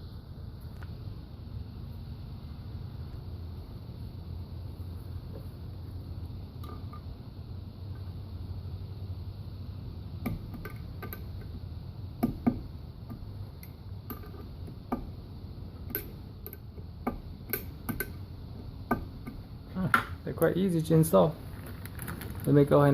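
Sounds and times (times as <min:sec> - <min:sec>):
low steady hum: 0:00.0 - 0:22.9.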